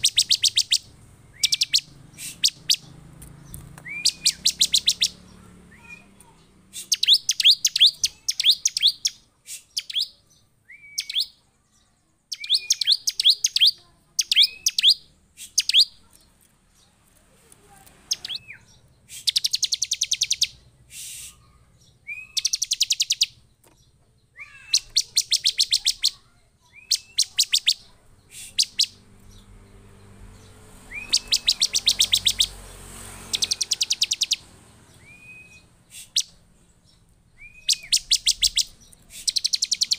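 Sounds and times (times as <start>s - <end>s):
bird calling sharp high notes: 0.0s - 3.0s, 3.8s - 11.4s, 12.3s - 16.1s, 24.4s - 29.0s, 30.8s - 32.6s, 33.2s - 36.4s, 37.4s - 39.9s
bird rising chirps: 0.0s - 16.1s, 18.1s - 23.5s, 24.3s - 39.9s.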